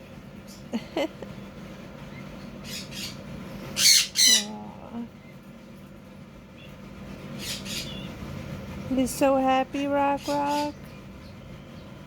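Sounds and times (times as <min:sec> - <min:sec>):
parrot calls: 0:03.8 - 0:04.6, 0:07.4 - 0:08.0.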